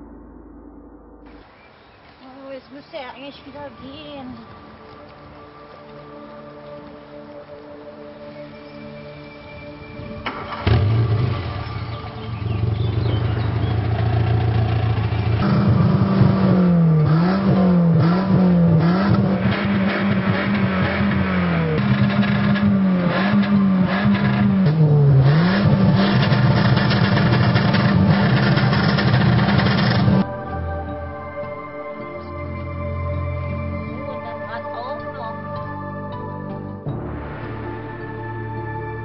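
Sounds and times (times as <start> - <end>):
car engine idling and revving: 9.8 - 30.3
engine cranking: 10.2 - 30.2.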